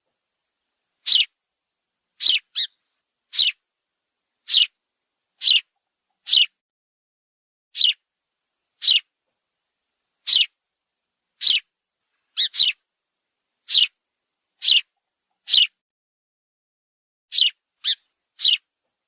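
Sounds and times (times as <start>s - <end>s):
bird giving sharp high calls: 1.0s - 1.3s, 2.2s - 3.6s, 4.4s - 4.8s, 5.4s - 6.6s, 7.8s - 8.0s, 8.8s - 9.1s, 10.2s - 10.6s, 11.4s - 11.7s, 12.4s - 12.8s, 13.7s - 14.0s, 14.6s - 15.8s, 17.3s - 18.6s.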